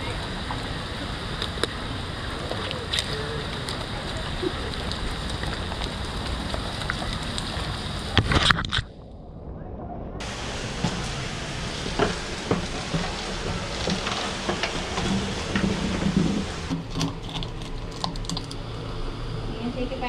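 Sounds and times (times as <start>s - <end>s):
steady rain: 0.0s - 8.8s, 10.2s - 20.0s
water sloshing: 0.0s - 8.9s, 10.2s - 18.7s
rustling and knocks: 10.2s - 18.5s.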